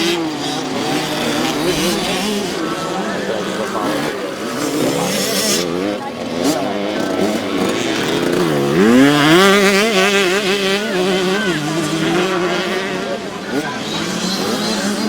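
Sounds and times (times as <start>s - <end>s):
motocross bikes revving: 0.0s - 15.0s.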